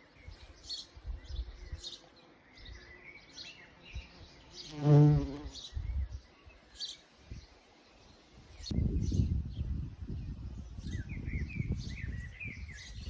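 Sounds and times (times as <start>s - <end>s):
small birds chirping: 0.0s - 13.0s
bumblebee buzzing past: 0.6s - 5.8s
wind rumble: 8.6s - 13.0s.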